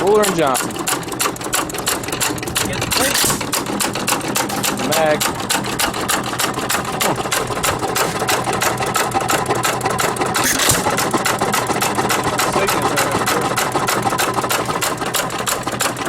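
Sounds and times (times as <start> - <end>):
hit-and-miss engine clicking: 0.0 - 16.0.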